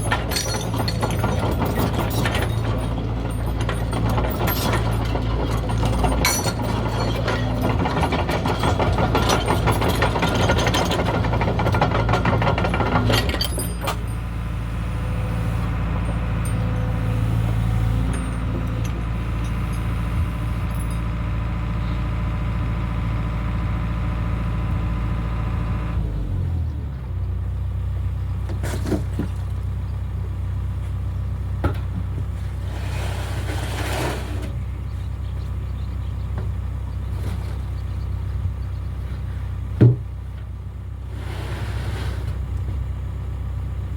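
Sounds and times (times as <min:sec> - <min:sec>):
clanking and rattling: 0:00.0 - 0:22.0
engine whine: 0:00.0 - 0:43.9
excavator engine running: 0:00.0 - 0:43.9.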